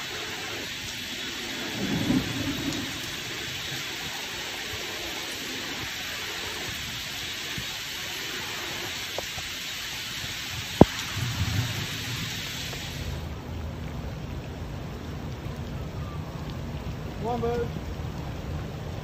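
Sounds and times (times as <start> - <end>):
heavy rain falling: 0.0 - 19.0
low rumble: 1.5 - 3.9.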